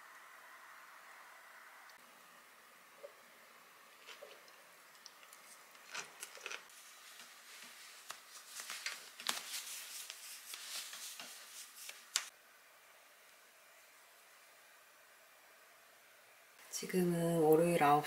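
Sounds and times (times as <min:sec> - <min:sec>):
fabric rustling: 0:06.7 - 0:12.3.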